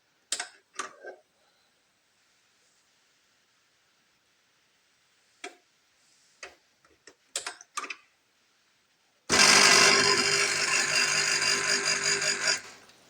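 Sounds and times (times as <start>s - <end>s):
espresso machine pump buzzing: 9.3s - 12.9s.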